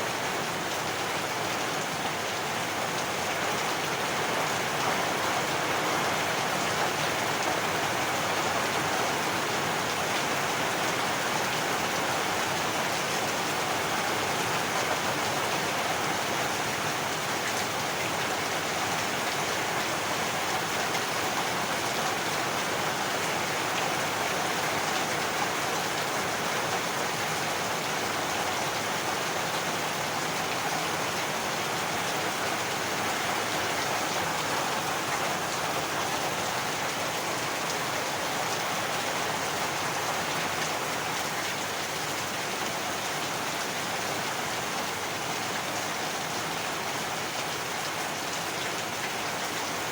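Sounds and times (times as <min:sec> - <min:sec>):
heavy rain falling: 0:00.0 - 0:49.9.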